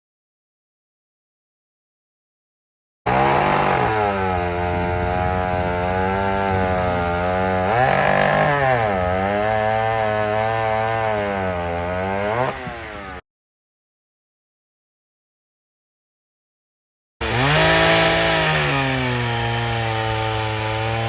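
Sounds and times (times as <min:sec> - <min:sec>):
chainsaw engine running hard: 0:03.1 - 0:13.2, 0:17.2 - 0:21.0.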